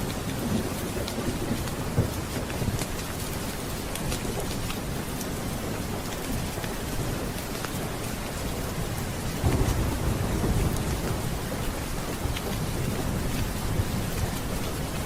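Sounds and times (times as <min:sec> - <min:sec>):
steady rain: 0:00.0 - 0:15.0
rolling thunder: 0:09.2 - 0:14.4.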